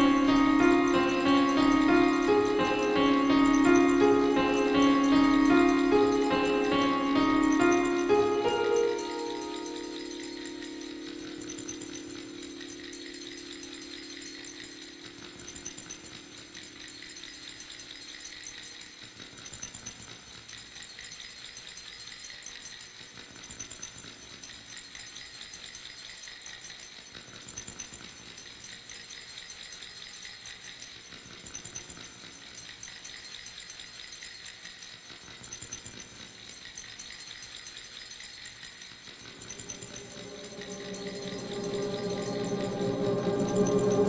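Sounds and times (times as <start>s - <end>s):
experimental electronic music: 0.0s - 17.4s, 39.2s - 44.0s
low pitched tones: 39.2s - 44.0s.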